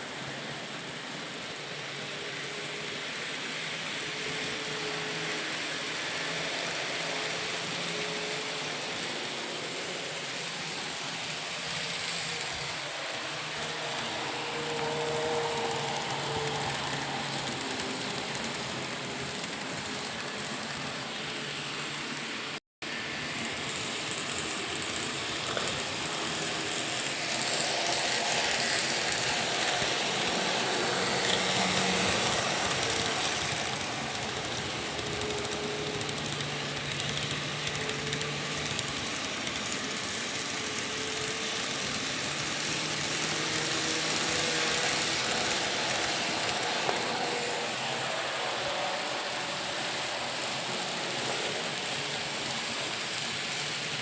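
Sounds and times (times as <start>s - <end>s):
electric train rumble and rattle: 0.0s - 54.0s.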